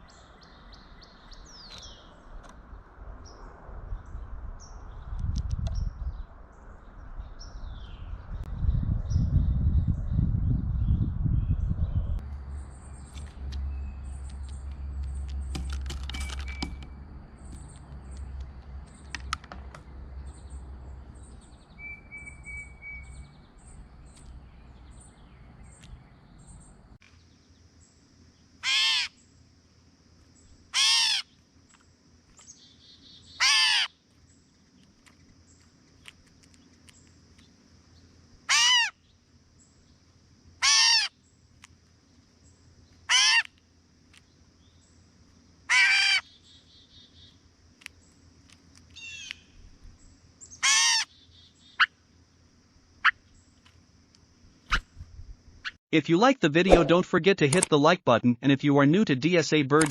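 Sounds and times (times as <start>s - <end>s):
faint high chirps: 21.2s - 24.3s
bird harsh mew call: 28.6s - 29.2s, 30.7s - 31.3s, 33.4s - 34.0s, 38.5s - 39.0s, 40.6s - 41.2s, 43.1s - 43.5s, 45.7s - 46.3s, 50.6s - 51.1s.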